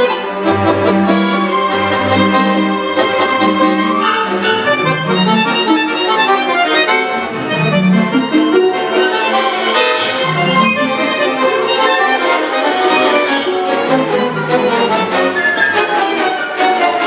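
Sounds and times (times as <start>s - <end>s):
accordion playing fast notes: 0.0s - 17.0s
sustained bass chords: 0.3s - 6.1s.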